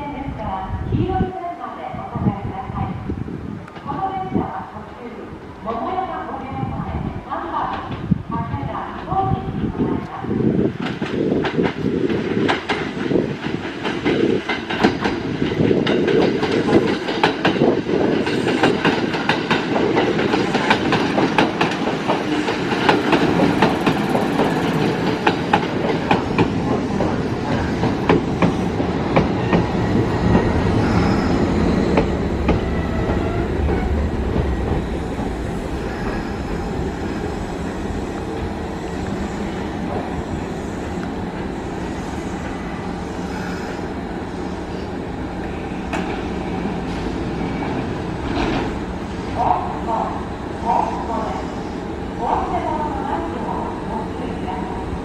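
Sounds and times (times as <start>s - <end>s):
electric train rumbling: 0.0s - 55.0s
train wheels clacking over rail joints: 10.8s - 30.5s.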